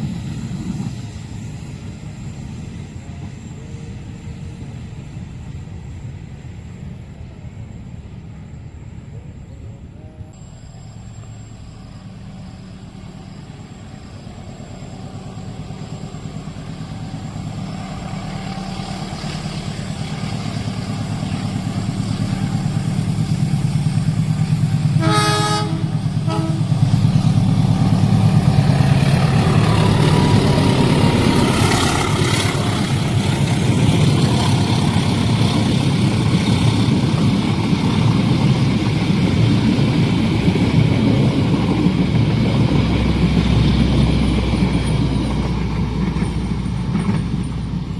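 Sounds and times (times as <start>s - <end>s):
train rumbling past: 0.0s - 47.9s
locomotive horn: 24.9s - 27.0s.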